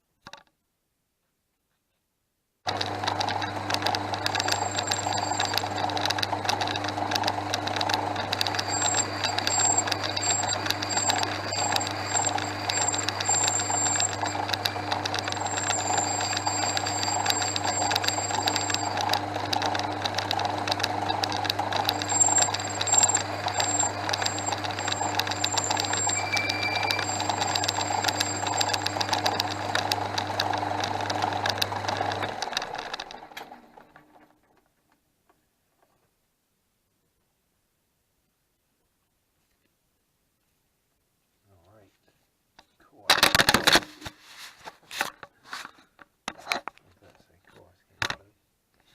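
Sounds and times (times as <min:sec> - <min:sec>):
lathe motor hum: 0:02.7 - 0:34.0
ticking rattle of drive: 0:02.7 - 0:34.4
lathe winding down: 0:02.7 - 0:34.5
faint high whistle: 0:22.2 - 0:28.8.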